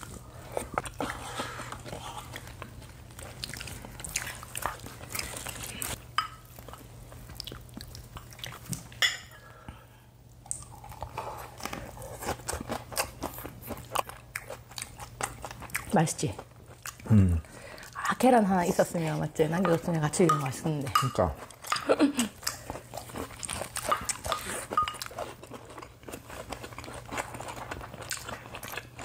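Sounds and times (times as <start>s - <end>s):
chewing and crunching food: 0.0s - 9.0s, 10.4s - 19.2s, 21.0s - 29.0s.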